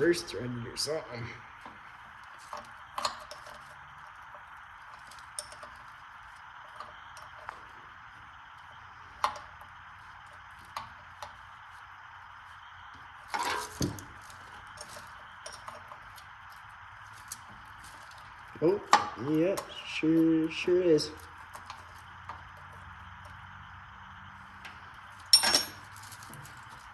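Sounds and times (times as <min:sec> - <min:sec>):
metal tools clinking: 0:04.9 - 0:06.0, 0:13.3 - 0:22.0, 0:24.6 - 0:26.9
metal tools clattering: 0:13.3 - 0:16.2, 0:24.6 - 0:26.9.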